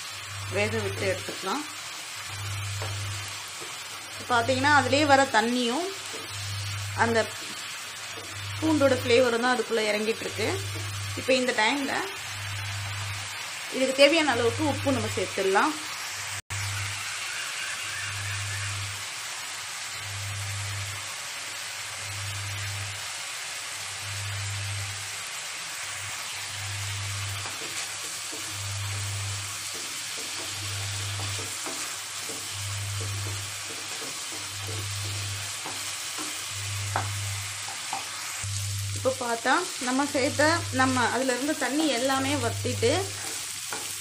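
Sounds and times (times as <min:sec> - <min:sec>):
prawns sizzling in a frying pan: 0:00.0 - 0:44.0
spatula stirring: 0:27.2 - 0:38.4, 0:43.0 - 0:44.0.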